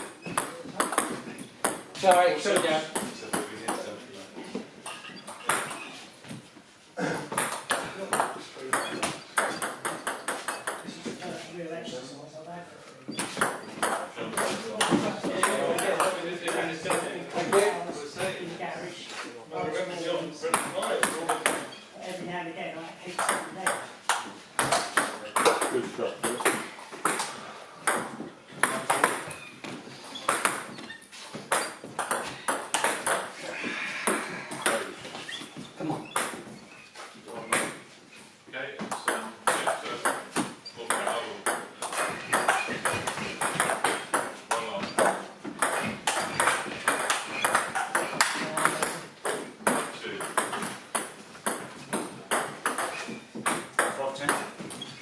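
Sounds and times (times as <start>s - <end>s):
shoe squeaks: 0.0s - 0.6s, 4.8s - 6.4s, 8.7s - 11.1s, 13.1s - 13.8s, 21.6s - 22.1s, 29.2s - 32.5s, 34.9s - 37.2s, 42.0s - 43.7s, 44.8s - 48.2s, 52.7s - 53.4s, 54.7s - 55.0s.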